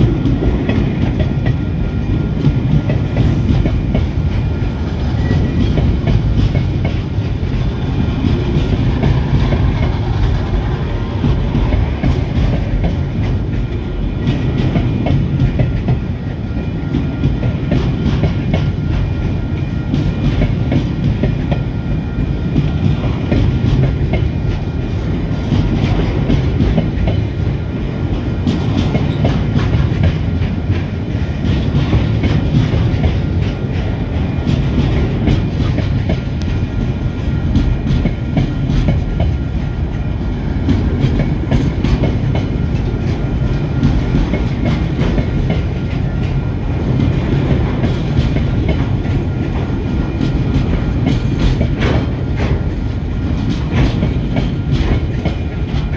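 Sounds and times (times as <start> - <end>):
steel wheels rumbling on rails: 0.0 - 55.9.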